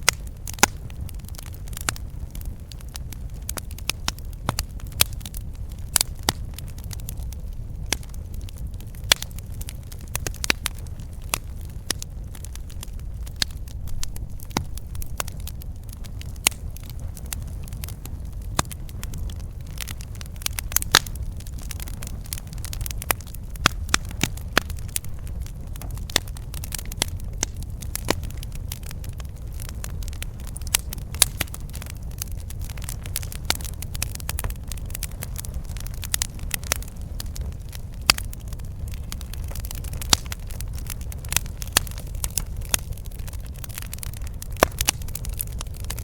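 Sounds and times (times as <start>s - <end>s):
campfire crackling and popping: 0.0s - 46.0s
low rumble: 10.8s - 26.0s.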